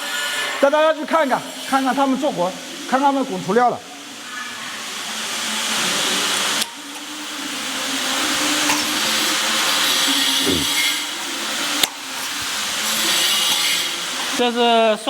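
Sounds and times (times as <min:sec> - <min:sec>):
machine motor whirring hiss: 0:04.9 - 0:14.4.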